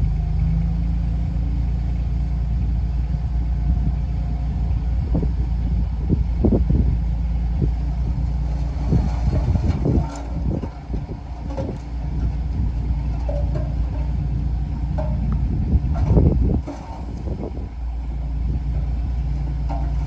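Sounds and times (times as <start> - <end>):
bulldozer diesel engine running: 0.0 - 20.0
machine knocks and clanks: 8.4 - 20.0.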